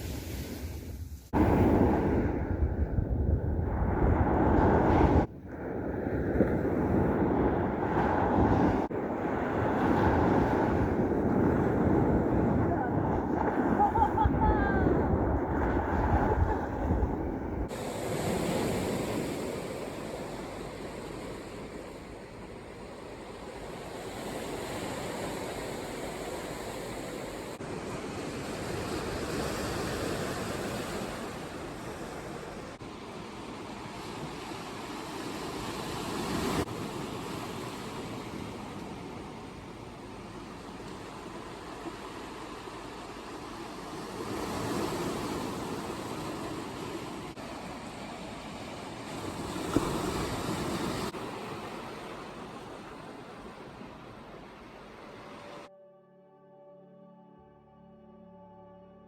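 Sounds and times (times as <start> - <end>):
wind buffeting microphone: 1.3 - 29.8
breaking waves: 1.3 - 55.6.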